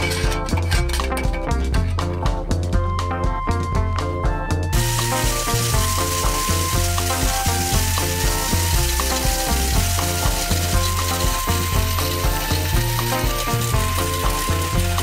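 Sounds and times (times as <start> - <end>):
music with steady beat: 0.1 - 15.0
corn sheller hissing rattle: 4.8 - 15.0.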